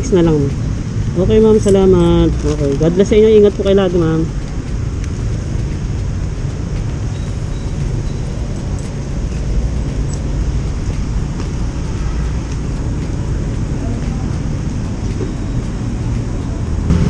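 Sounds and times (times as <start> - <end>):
motorcycle engine rumble: 0.0 - 17.0
street traffic noise: 0.0 - 17.0.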